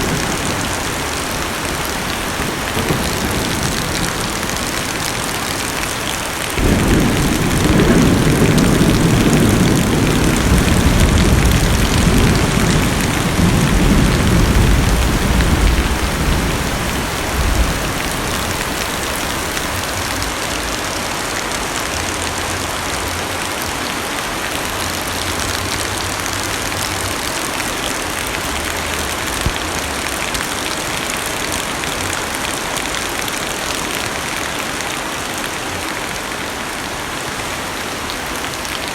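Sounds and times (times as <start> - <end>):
thunder rumbling: 0.0 - 21.2
heavy rain on car roof: 0.0 - 38.9.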